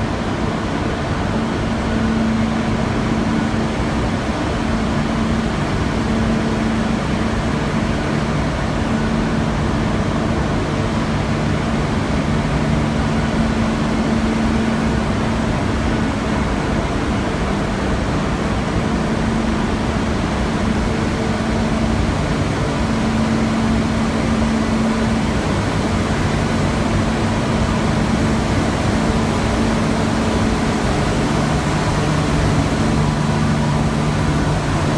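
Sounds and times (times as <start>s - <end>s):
industrial furnace rushing: 22.8s - 34.9s
low hum: 27.5s - 34.9s.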